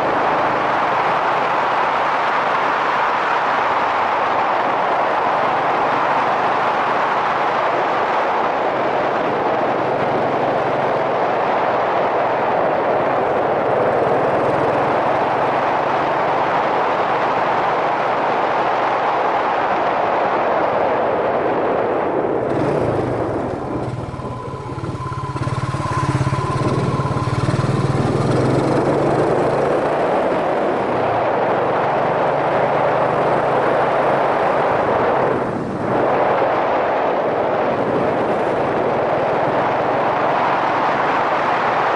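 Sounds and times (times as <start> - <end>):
wind rushing over microphone: 0.0 - 41.9
motorcycle engine: 12.3 - 18.0, 22.3 - 41.5.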